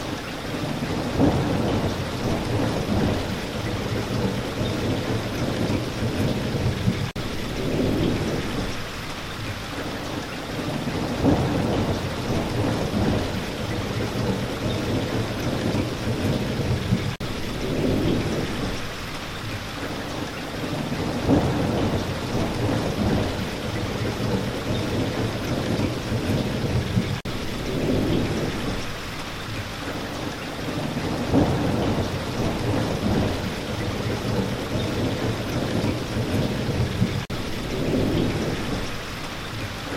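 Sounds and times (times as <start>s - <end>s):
thunder rumbling: 0.0s - 9.0s, 9.8s - 19.0s, 20.6s - 29.2s, 29.9s - 39.9s
steady rain: 0.0s - 39.9s.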